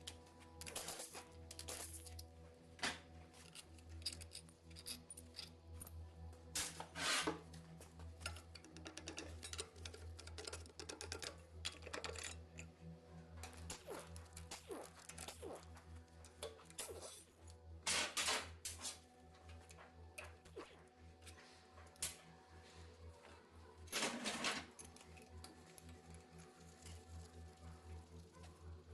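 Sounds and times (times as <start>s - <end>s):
low droning background music: 0.0s - 28.9s
metal tools clinking and scraping: 3.3s - 5.6s, 8.2s - 12.8s.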